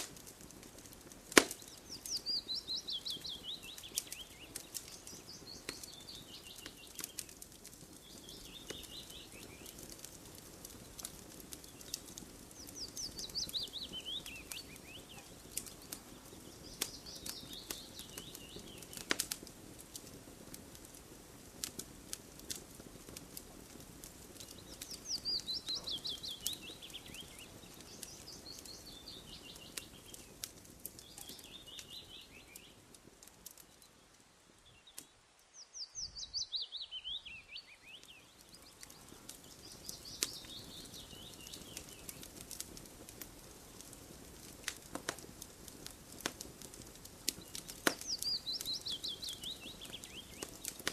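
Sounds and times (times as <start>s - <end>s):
campfire crackling and popping: 0.0s - 50.9s
bird chirping: 1.5s - 9.9s, 10.9s - 19.1s, 24.4s - 32.8s, 33.5s - 42.3s, 47.3s - 50.9s.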